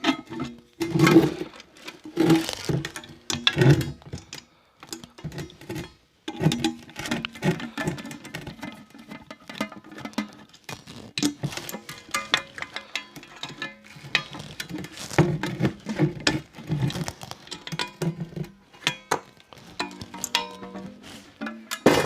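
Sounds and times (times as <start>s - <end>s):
hand tools clinking on bolts: 11.2s - 22.0s.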